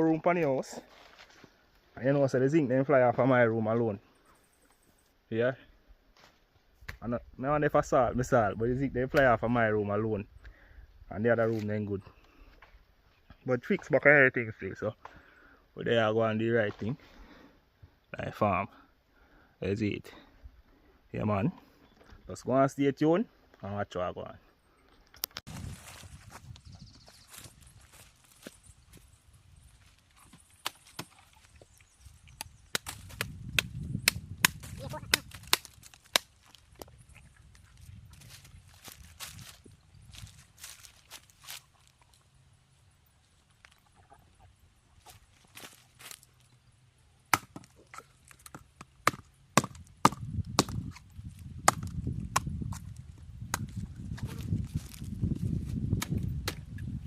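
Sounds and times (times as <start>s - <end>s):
twigs snapping: 30.1s - 31.5s, 32.3s - 37.0s, 47.3s - 55.1s
footsteps through debris: 37.8s - 42.0s
sharp knocks or chops: 49.1s - 51.0s.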